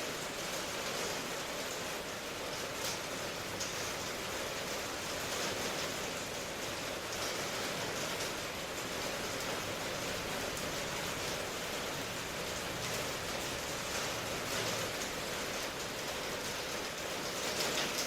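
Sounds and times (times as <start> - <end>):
steady rain falling: 0.0 - 18.0
raindrop patter: 0.2 - 18.0.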